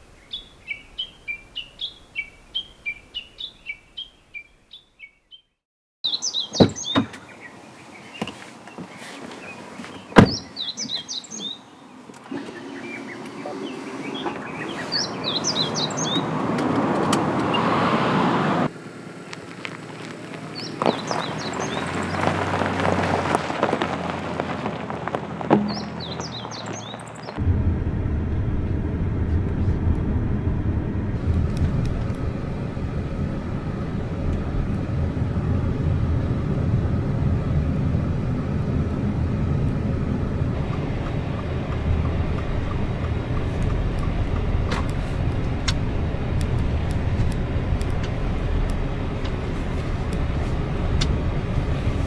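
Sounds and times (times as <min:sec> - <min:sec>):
songbird chirping: 0:00.0 - 0:18.6, 0:19.2 - 0:27.4, 0:40.4 - 0:52.0
sharp knocks: 0:25.5 - 0:26.0.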